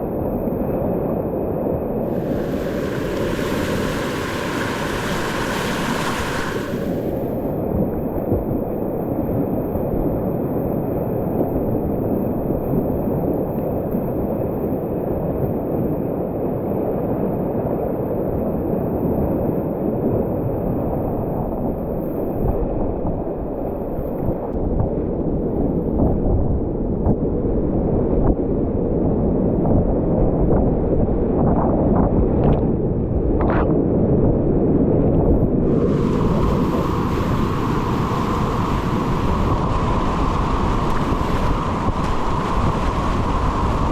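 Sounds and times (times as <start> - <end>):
wind buffeting microphone: 0.0 - 43.9
river whitewater rushing: 2.1 - 7.5, 35.7 - 43.5.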